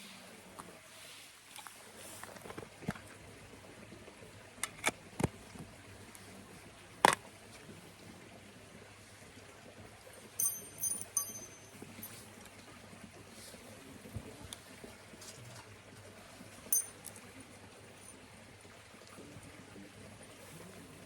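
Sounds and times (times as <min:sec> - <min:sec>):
ringing metallic clinks: 0:10.4 - 0:12.2, 0:16.7 - 0:17.2.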